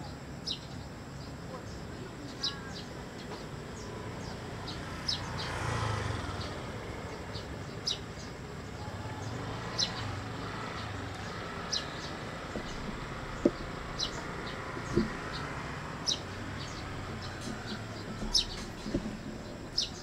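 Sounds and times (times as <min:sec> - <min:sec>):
bird chirping: 0:00.0 - 0:20.0
low outdoor rumble: 0:06.4 - 0:20.0.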